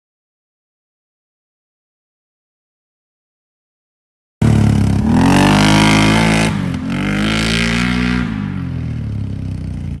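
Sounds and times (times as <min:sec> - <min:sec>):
atv engine revving: 0:04.4 - 0:10.0.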